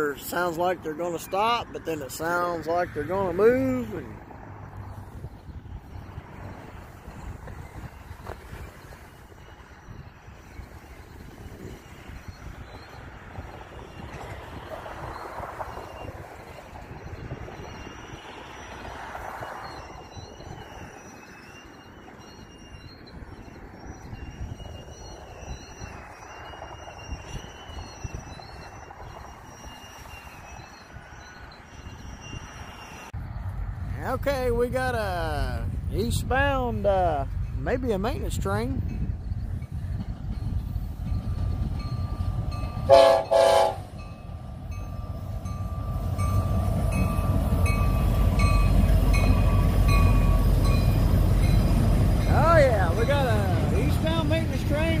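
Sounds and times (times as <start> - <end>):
distant freight train rumbling: 0.0 - 55.0
locomotive air horn blasts: 42.8 - 44.1.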